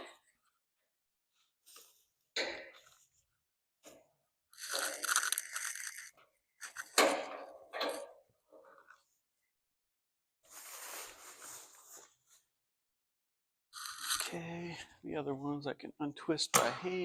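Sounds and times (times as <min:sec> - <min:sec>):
bands scraping and crinkling: 0:04.5 - 0:07.0, 0:13.8 - 0:14.3.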